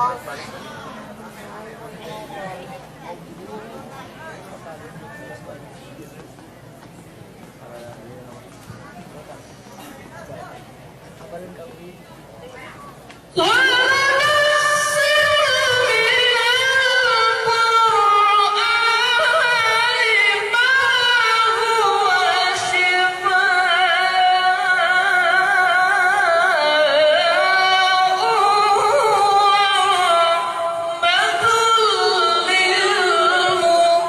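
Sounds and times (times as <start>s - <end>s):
solo melodic religious recitation: 13.4s - 34.0s.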